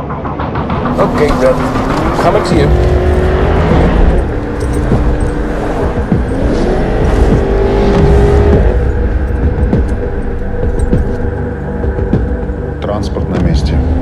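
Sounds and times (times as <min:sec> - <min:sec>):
car engine accelerating: 0:00.6 - 0:11.3
road noise rumble: 0:00.6 - 0:14.0.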